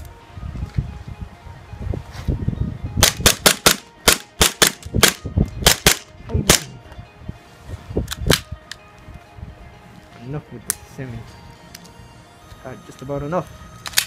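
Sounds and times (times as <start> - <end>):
airsoft pistol shots: 3.0 - 6.7.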